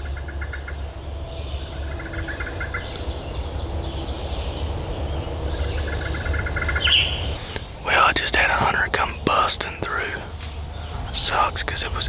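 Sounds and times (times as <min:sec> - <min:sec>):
songbird trilling: 0:00.0 - 0:12.0
steady low rumble: 0:00.0 - 0:12.0.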